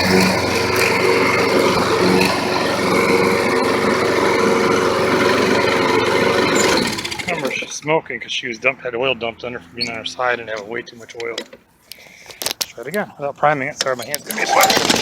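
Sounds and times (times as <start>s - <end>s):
lawn mower engine running: 0.0s - 7.9s, 14.3s - 15.0s.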